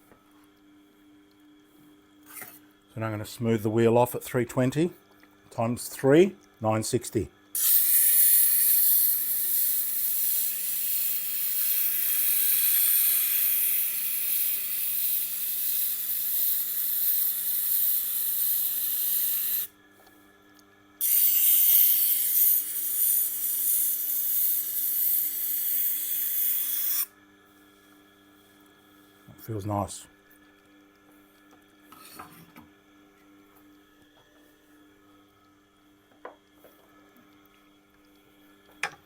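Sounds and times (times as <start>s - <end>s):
abrasive hiss on grinding stone: 7.6s - 19.7s, 21.0s - 27.1s.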